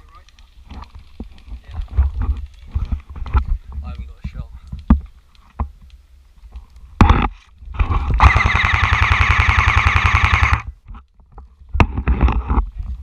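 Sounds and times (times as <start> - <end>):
sharp crack: 7.0 - 10.7
airsoft gun firing full-auto: 8.2 - 10.7
gearbox whir: 8.2 - 10.7.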